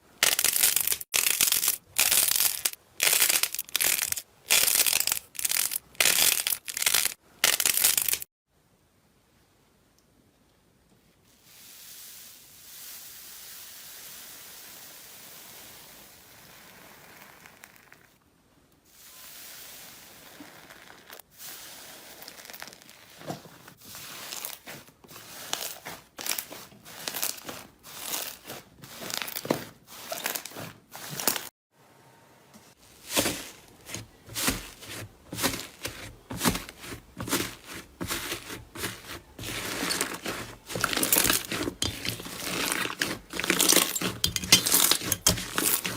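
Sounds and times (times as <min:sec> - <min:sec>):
slime crackling and popping: 0:00.2 - 0:08.3.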